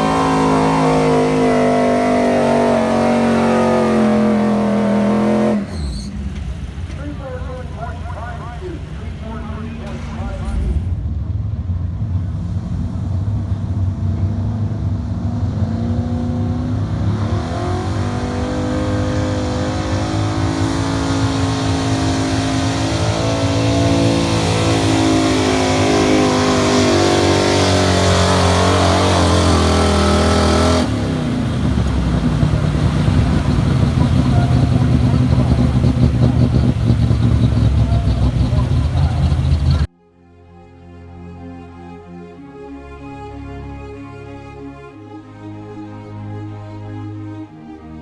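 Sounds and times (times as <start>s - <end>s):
truck engine at full throttle: 0.0s - 39.9s.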